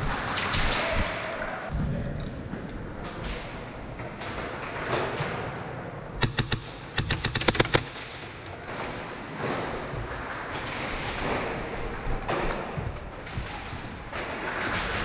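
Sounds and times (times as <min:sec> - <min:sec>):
airsoft gunfire bursts: 0:06.2 - 0:08.0.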